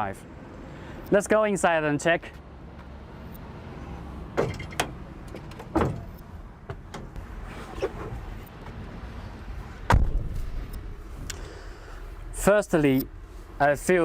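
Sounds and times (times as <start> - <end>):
knocks on cab door and steps: 4.4 - 7.2.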